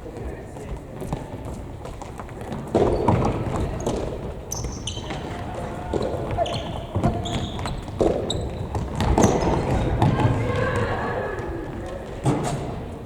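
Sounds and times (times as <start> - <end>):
shoes squeaking on floor: 0.6 - 10.3
players shouting: 9.2 - 12.2.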